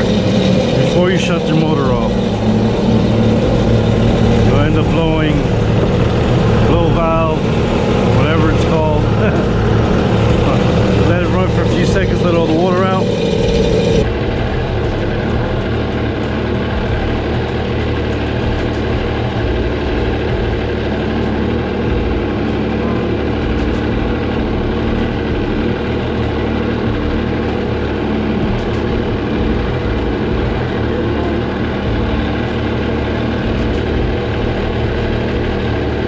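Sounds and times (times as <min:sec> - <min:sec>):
watercraft engine idling: 0:00.0 - 0:36.0.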